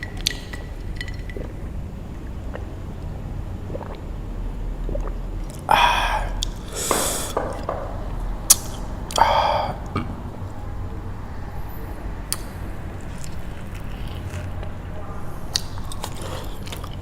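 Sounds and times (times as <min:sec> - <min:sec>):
drawn pitched slurping sounds: 0:00.2 - 0:10.3
mouth sounds eating noodles: 0:04.9 - 0:07.7, 0:08.5 - 0:10.3
hissing suck: 0:05.7 - 0:07.6, 0:08.5 - 0:09.9.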